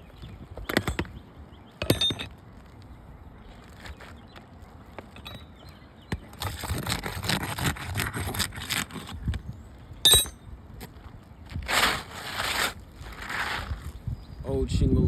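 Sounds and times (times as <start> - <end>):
shingle scraping and rustling: 0.0 - 14.2
sharp metallic clink: 1.8 - 2.3, 10.1 - 10.4.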